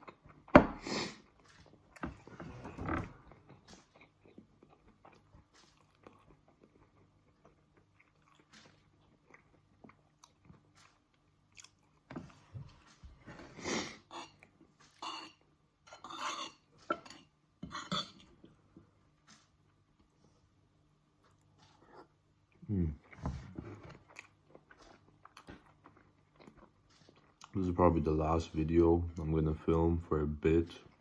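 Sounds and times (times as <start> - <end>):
close-up chewing: 3.2 - 13.0, 21.2 - 27.7.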